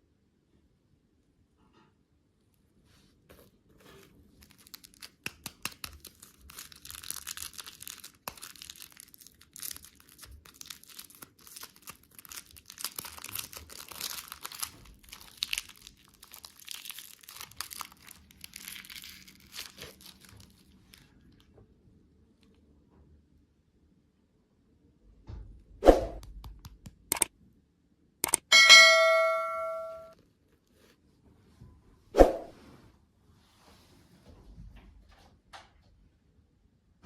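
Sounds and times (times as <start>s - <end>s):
wrapper crinkling and tearing: 3.9s - 21.4s.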